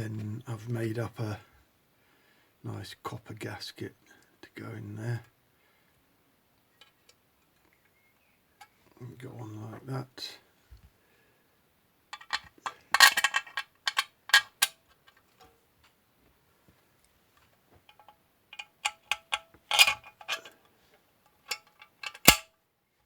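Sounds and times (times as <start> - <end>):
metal parts clicking: 12.2 - 15.2, 17.9 - 20.6, 21.4 - 22.5
sharp metallic clink: 21.5 - 22.5.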